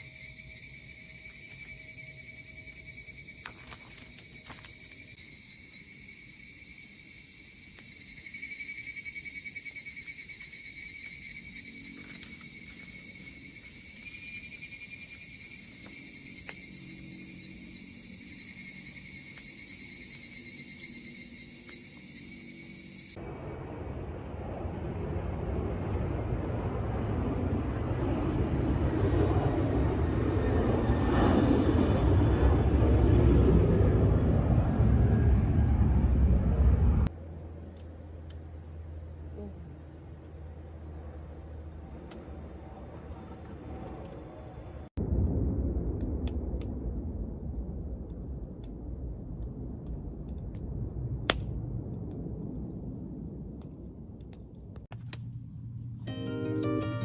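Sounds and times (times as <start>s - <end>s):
crickets chirping: 0.0s - 31.0s
low engine rumble: 23.2s - 56.4s.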